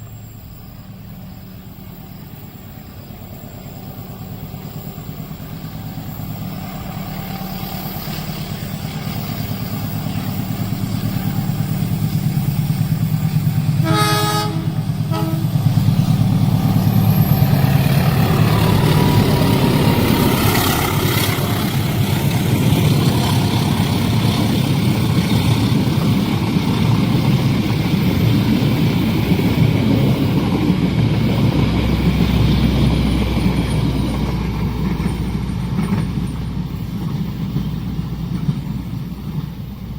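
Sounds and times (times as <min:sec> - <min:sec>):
train rumble: 0:00.0 - 0:39.9
train wheels and cars rattling: 0:00.0 - 0:39.9
train horn: 0:10.9 - 0:12.2, 0:13.4 - 0:15.8.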